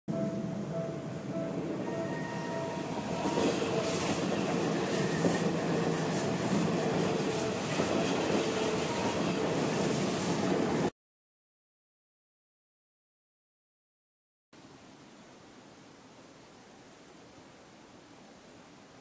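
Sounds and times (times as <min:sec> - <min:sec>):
crossing warning bell: 0:00.1 - 0:10.8
train wheels clattering over rails: 0:02.7 - 0:10.9.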